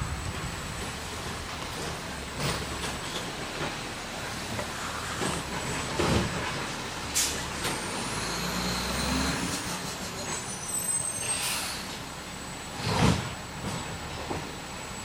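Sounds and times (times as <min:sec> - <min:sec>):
garbage truck engine running: 0:00.0 - 0:11.1
air hiss: 0:11.2 - 0:12.0.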